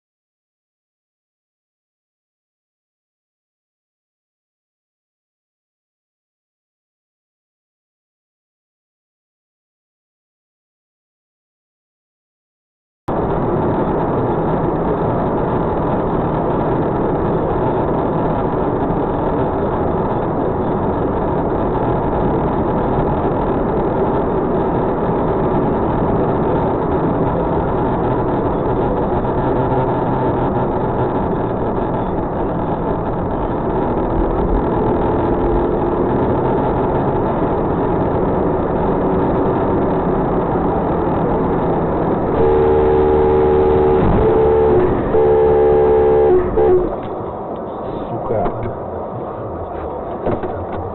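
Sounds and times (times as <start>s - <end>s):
car engine and road noise: 13.1s - 50.9s
car horn: 42.3s - 47.3s.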